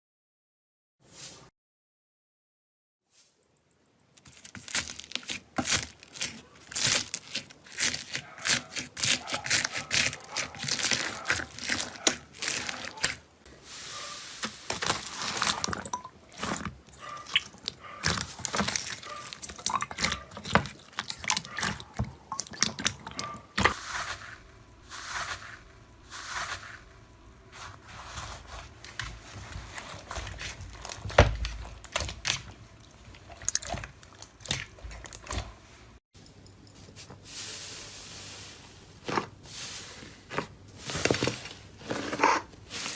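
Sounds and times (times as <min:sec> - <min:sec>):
slime crackling and popping: 0:04.2 - 0:13.2.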